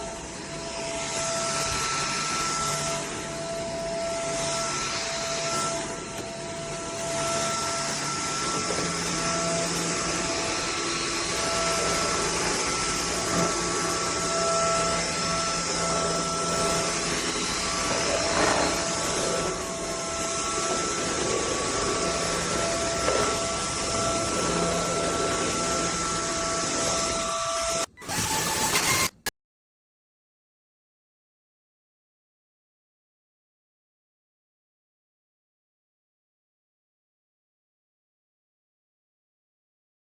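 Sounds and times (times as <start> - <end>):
stick vacuum cleaner running: 0.0 - 29.3.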